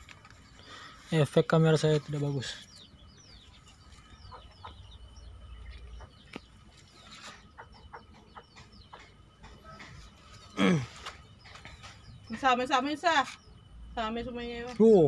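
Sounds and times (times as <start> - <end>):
faint bird chirps: 0.0 - 15.0.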